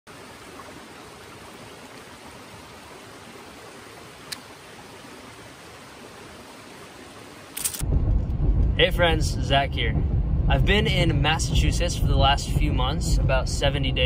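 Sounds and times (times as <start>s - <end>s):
low rumble: 7.8s - 14.0s.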